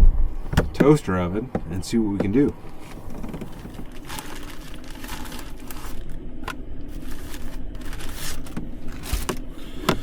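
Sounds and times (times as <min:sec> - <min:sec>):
steady low hum: 0:00.0 - 0:10.0
packaging rustling and crinkling: 0:02.7 - 0:09.5.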